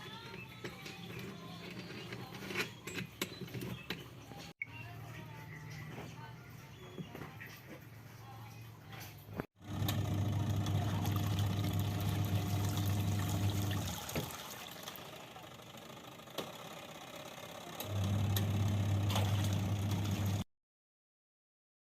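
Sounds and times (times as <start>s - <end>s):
washing machine motor hum: 9.6s - 20.5s
water sloshing in tub: 10.6s - 15.2s, 19.0s - 20.4s.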